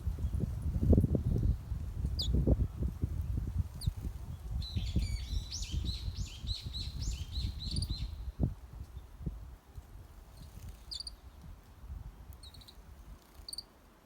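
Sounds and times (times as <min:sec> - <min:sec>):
songbird chirping: 0:04.6 - 0:08.3.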